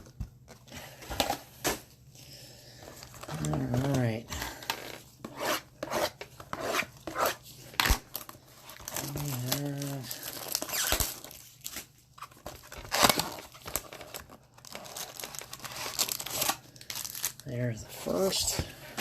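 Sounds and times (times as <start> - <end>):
packaging torn and crinkled: 7.7 - 18.4.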